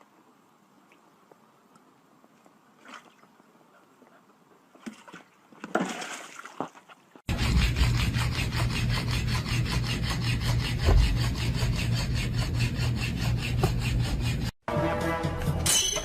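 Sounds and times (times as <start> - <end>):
rhythmic rasping strokes: 7.3 - 16.0.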